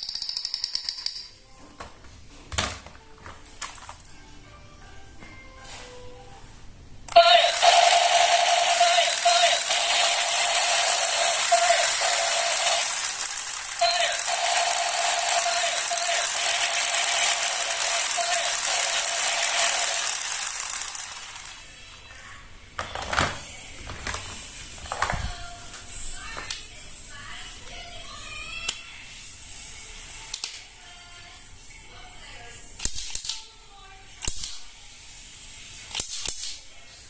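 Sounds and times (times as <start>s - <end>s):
toy gun clicks: 0.0s - 1.3s, 7.1s - 21.6s
toy gun firing burst: 7.1s - 21.6s.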